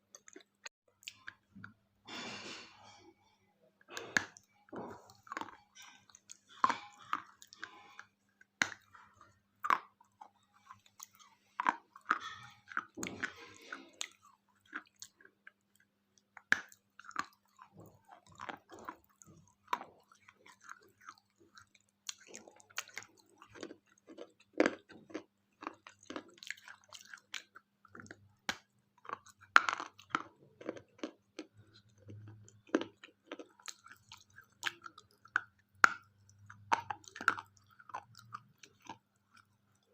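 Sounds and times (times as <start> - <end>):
chewing and crunching wafer: 0.0 - 39.9.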